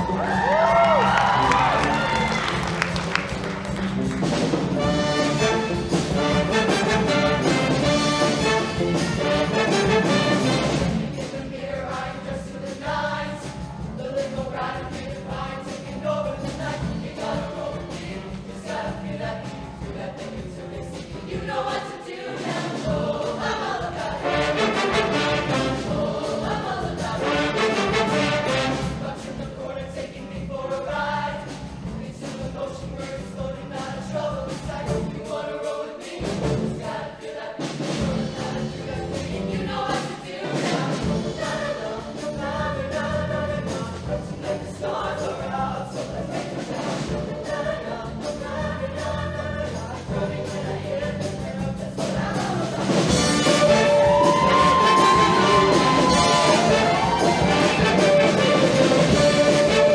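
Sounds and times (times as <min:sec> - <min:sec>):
instrumental backing: 0:00.0 - 0:11.5, 0:52.2 - 0:59.9
choir singing in harmony: 0:00.0 - 0:59.9.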